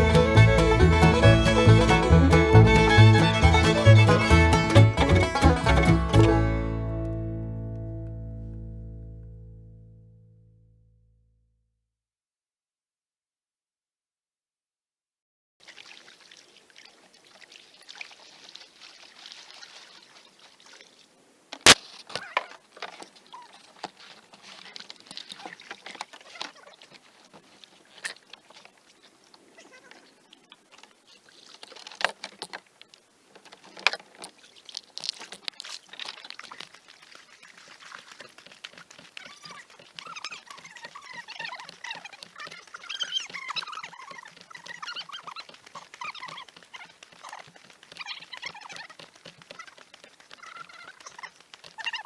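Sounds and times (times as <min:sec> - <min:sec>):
water dripping and trickling: 0:15.6 - 0:21.2, 0:30.6 - 0:52.0
paddle splashing through water: 0:15.6 - 0:52.0.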